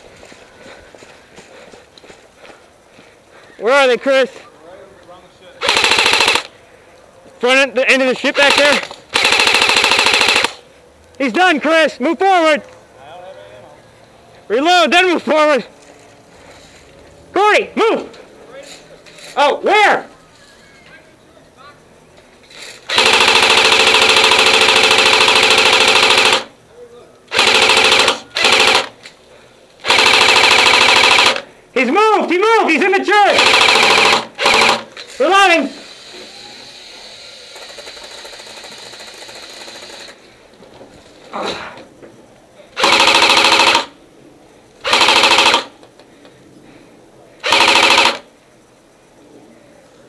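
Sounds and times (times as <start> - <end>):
electric gun firing bursts: 5.6 - 6.6, 7.9 - 10.6, 22.5 - 26.6, 27.3 - 29.0, 29.8 - 31.5, 32.7 - 40.2, 42.8 - 44.0, 44.8 - 45.8, 47.4 - 48.3.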